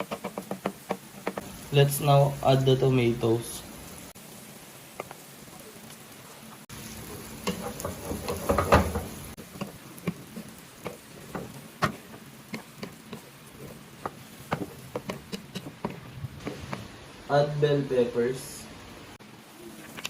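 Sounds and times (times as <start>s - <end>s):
utensil tapping in a pan: 0.0s - 1.5s, 4.9s - 5.2s, 7.4s - 16.9s
food sizzling in a frying pan: 0.0s - 20.0s.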